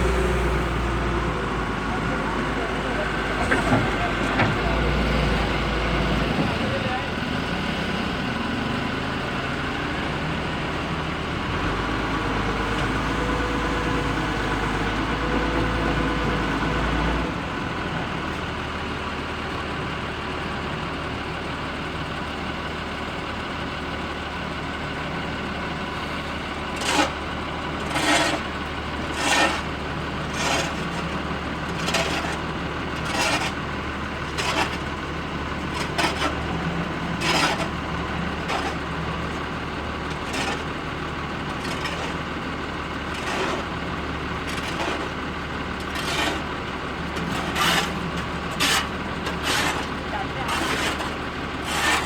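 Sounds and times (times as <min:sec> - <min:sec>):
steady engine hum: 0:24.5 - 0:52.0.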